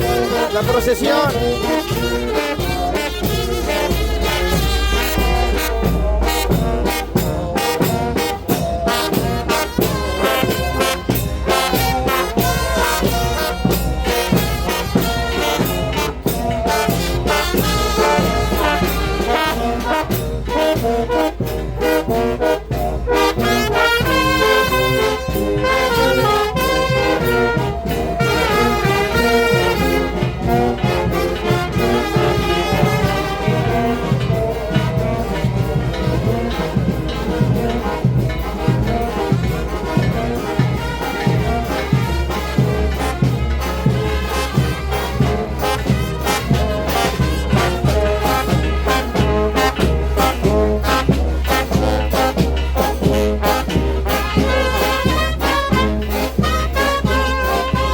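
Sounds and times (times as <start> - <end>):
brass band melody: 0.0 - 57.9
steady drum beat: 0.0 - 57.9.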